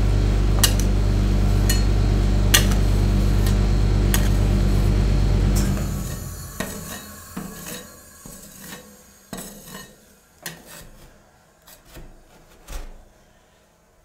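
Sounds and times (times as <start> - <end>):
metal spatulas scraping steel plate: 2.5 - 4.5, 5.6 - 13.0.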